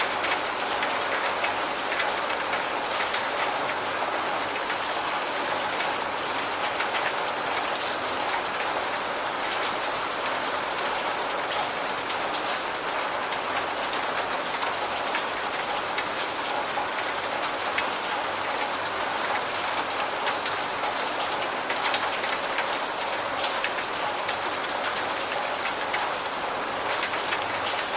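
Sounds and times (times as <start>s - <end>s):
steady rain: 0.0s - 27.9s.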